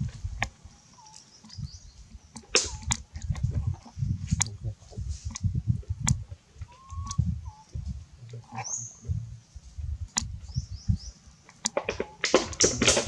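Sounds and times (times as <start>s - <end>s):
birds chirping: 0.0s - 13.0s
low rumble: 1.6s - 11.2s
sharp clicks: 2.3s - 4.6s, 5.3s - 9.2s, 10.1s - 10.6s, 11.4s - 13.0s.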